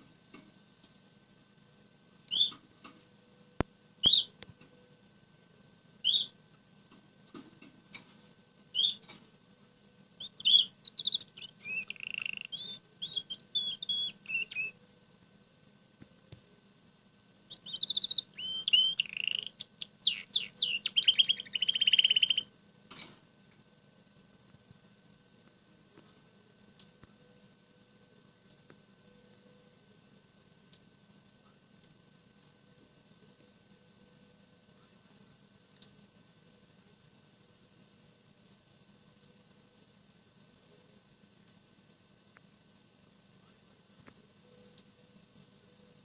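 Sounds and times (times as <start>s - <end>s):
canary chirps: 2.2s - 2.7s, 4.0s - 4.4s, 6.0s - 6.4s, 8.7s - 9.2s, 10.2s - 14.9s, 17.5s - 22.5s
canary warbling song with trills: 2.2s - 2.7s, 4.0s - 4.4s, 6.0s - 6.4s, 8.7s - 9.1s, 10.2s - 14.8s, 17.5s - 22.5s.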